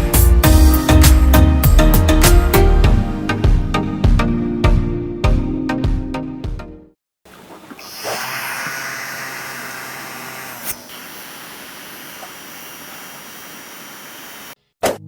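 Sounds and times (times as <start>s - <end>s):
small electric fan running: 7.3s - 14.6s.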